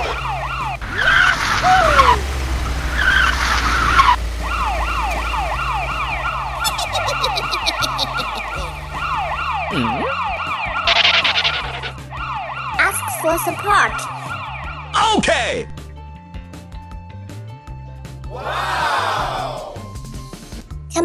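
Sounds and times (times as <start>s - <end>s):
hissing rush: 0.0s - 10.0s
police siren sweeping: 0.0s - 15.0s
vehicle engine rumble: 0.0s - 16.2s.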